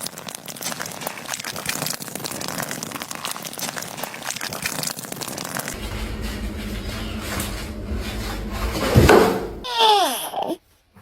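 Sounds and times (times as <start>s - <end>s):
rapid crinkling and crackling: 0.0s - 9.0s
low steady hum: 5.8s - 9.7s.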